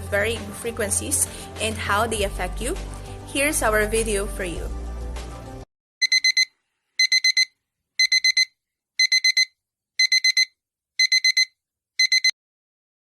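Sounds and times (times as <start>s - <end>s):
alarm clock beeping: 6.0s - 12.4s.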